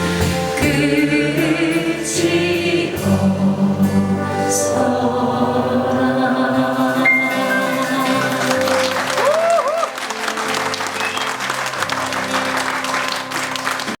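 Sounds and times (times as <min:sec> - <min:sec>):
audience applauding: 0:07.1 - 0:14.0
crowd member whooping: 0:08.0 - 0:12.8.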